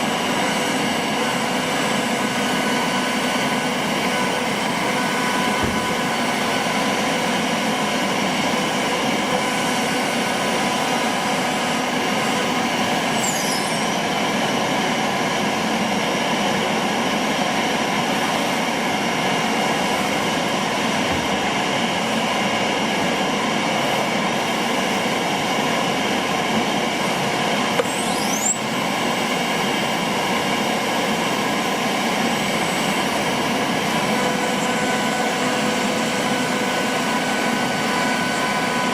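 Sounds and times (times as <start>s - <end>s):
cnc router humming and whining: 0.0s - 38.9s
high pitch sweeps: 13.1s - 14.1s, 27.8s - 28.7s.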